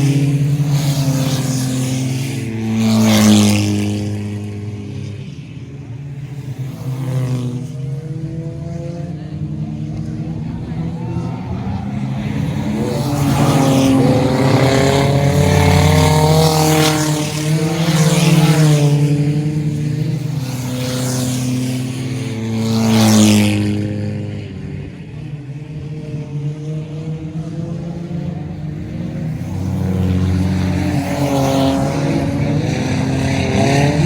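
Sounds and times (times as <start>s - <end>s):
race cars passing: 0.0s - 34.0s.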